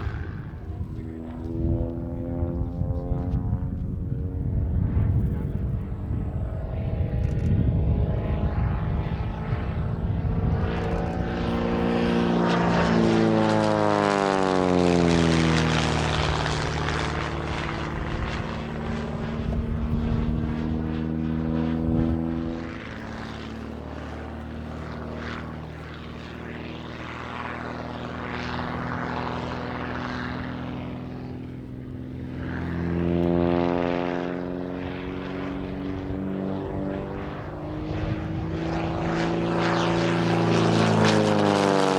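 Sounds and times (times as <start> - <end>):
biplane engine and propeller: 0.0 - 41.9.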